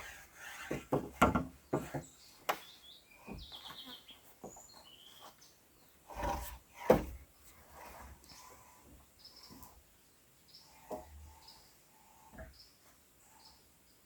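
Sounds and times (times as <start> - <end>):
bird chirps: 1.7 - 6.0.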